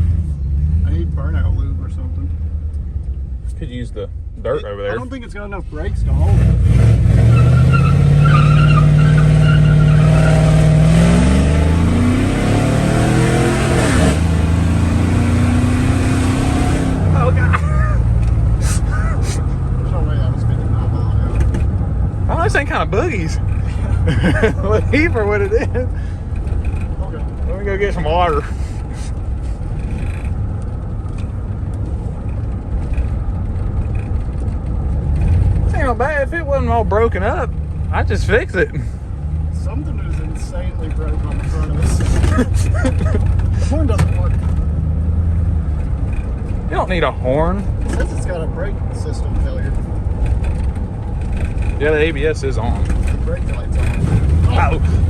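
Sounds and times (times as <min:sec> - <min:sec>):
road noise: 0:00.0 - 0:55.0
engine accelerating hard: 0:05.1 - 0:55.0
tire squeal: 0:07.1 - 0:11.6.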